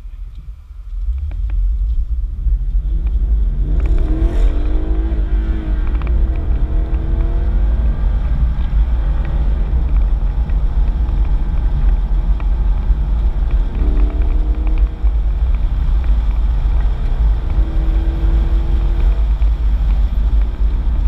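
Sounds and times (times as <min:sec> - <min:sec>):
car engine accelerating: 0:00.9 - 0:21.0.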